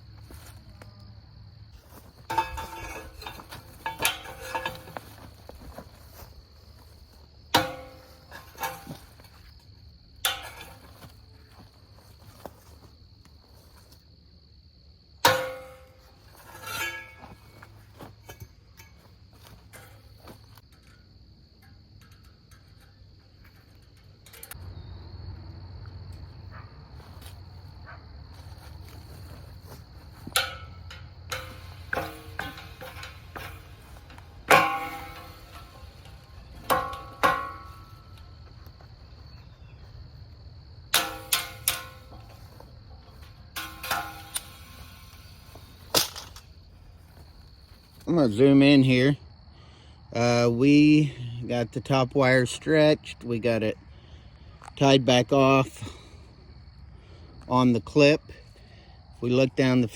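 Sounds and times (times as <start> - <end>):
insects droning: 0.0 - 59.9
metal fence wire clanking: 1.8 - 12.8, 15.2 - 24.9, 28.4 - 38.8, 40.9 - 46.7.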